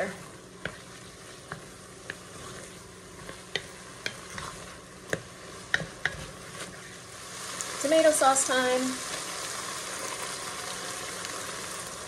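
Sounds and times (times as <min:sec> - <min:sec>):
wooden spoon scraping a pot: 0:00.0 - 0:07.1
meat sizzling in a pot: 0:00.0 - 0:12.0.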